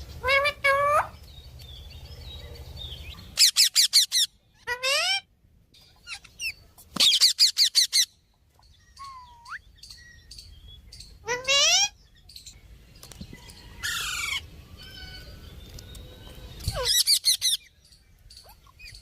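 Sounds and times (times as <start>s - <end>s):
parrot shrill calls: 3.4s - 5.3s, 6.0s - 8.2s, 8.9s - 9.6s, 11.2s - 12.0s, 13.8s - 15.4s, 16.7s - 17.7s.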